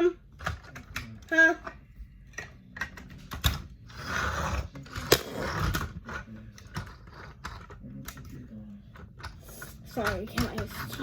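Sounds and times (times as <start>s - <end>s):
plastic bricks clicking and rattling: 4.7s - 11.0s.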